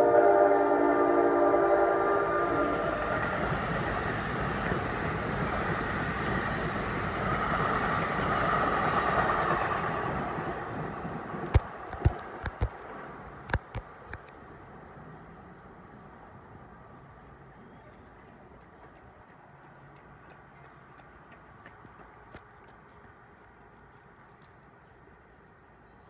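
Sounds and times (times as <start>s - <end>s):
train air horn chord: 0.0s - 3.1s
train rumbling by: 0.0s - 26.0s
wheels clacking over rail joints: 2.2s - 14.4s.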